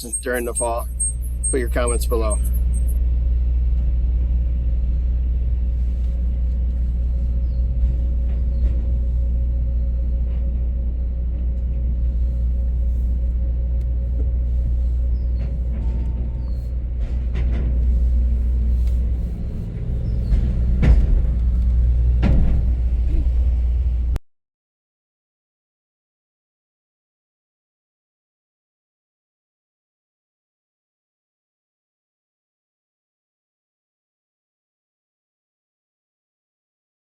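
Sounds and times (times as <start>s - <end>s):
vehicle rumbling: 0.0s - 24.2s.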